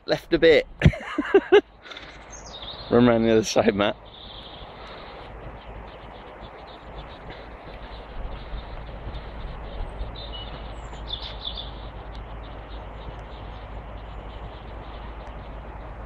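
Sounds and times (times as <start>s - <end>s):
high bird chirps: 1.0s - 16.0s.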